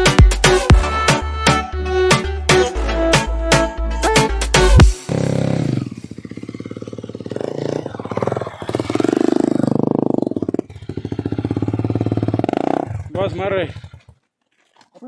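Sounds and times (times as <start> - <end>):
motorcycle engine revving: 4.7 - 14.3.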